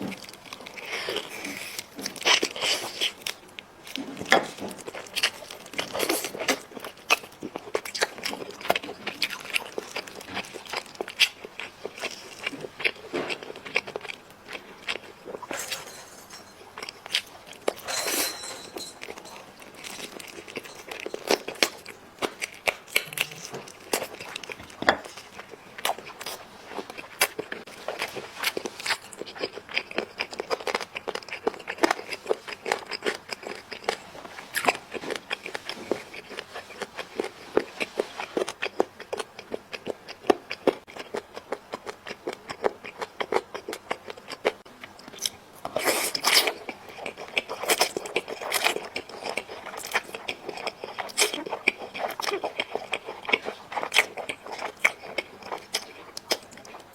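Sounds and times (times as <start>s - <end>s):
close chewing and biting: 19.0s - 56.9s.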